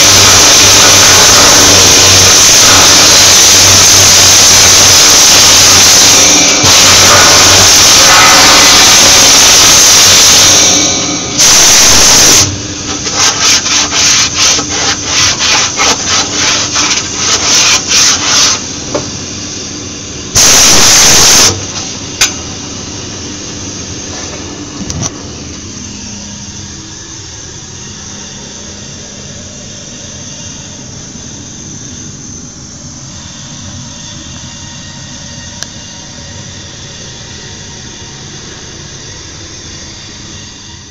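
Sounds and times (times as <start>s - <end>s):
welding arc crackling: 0.0s - 18.6s, 20.4s - 21.9s.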